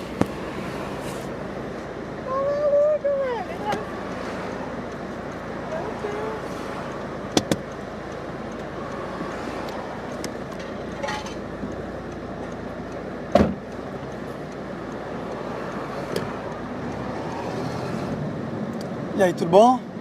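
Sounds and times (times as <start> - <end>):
car and street noise: 0.0 - 20.0
loud thump: 13.3 - 13.6.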